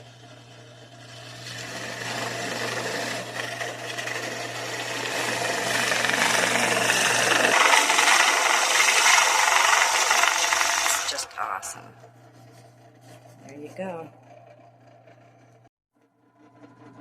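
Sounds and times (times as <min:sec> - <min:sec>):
drill press grinding through gourd: 0:00.0 - 0:11.4.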